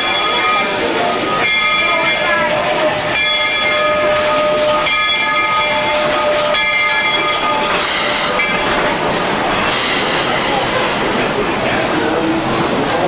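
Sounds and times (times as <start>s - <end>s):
train noise: 0.0s - 13.0s
steam locomotive whistle: 1.4s - 8.6s.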